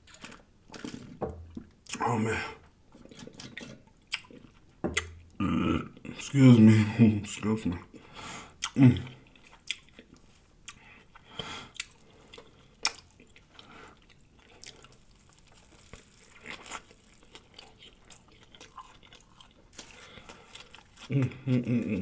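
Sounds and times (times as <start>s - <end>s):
close chewing and mouth smacking: 0.0s - 1.2s, 3.0s - 5.4s, 8.5s - 22.0s.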